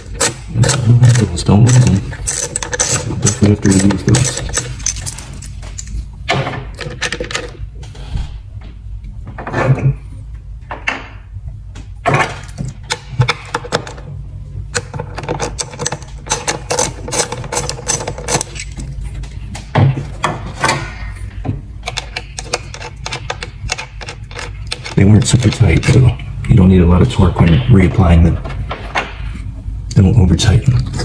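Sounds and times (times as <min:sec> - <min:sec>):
socket ratchet clicking: 0:00.0 - 0:05.2.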